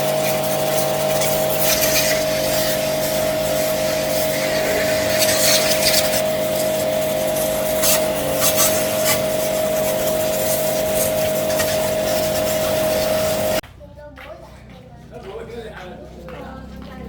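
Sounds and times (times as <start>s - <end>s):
motor whining: 0.0s - 13.6s.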